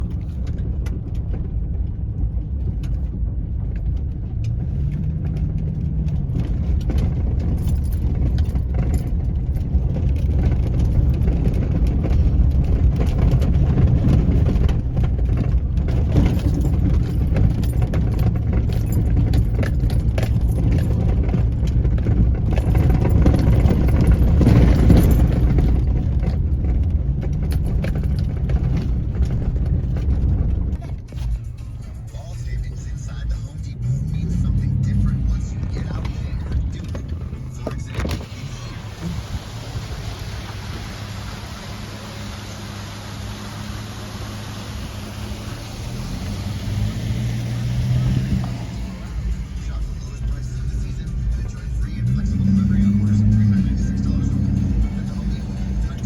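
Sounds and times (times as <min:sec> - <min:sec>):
small rattles and clicks: 0:00.0 - 0:31.7
car engine and road rumble: 0:00.0 - 0:56.0.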